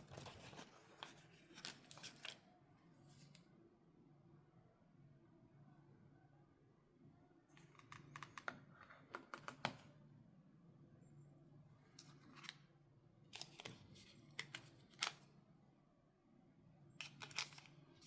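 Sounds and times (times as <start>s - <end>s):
hands handling phone packaging: 0.0s - 2.4s, 17.0s - 18.0s.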